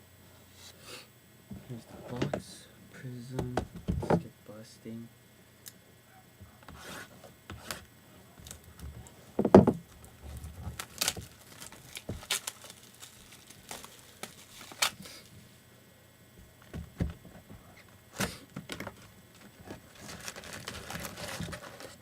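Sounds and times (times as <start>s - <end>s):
plastic shrink wrap tearing: 10.2s - 15.2s, 18.7s - 22.0s.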